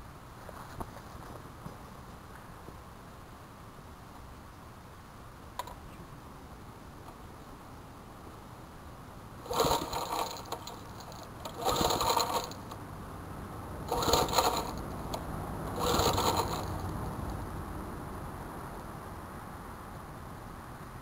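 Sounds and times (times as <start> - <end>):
recoil starter pulls: 9.4 - 12.8, 13.9 - 17.0.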